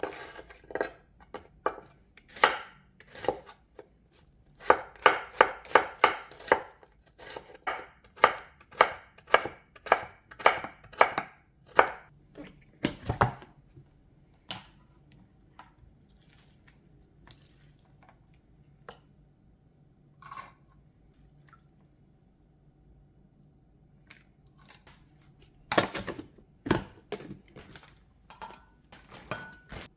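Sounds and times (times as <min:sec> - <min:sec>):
knife chopping on cutting board: 0:00.1 - 0:03.6, 0:04.6 - 0:12.1.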